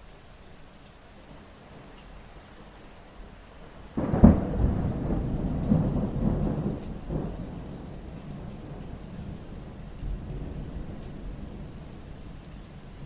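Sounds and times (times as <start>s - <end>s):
steady rainfall: 0.0s - 13.0s
thunder rumbling: 4.0s - 13.0s.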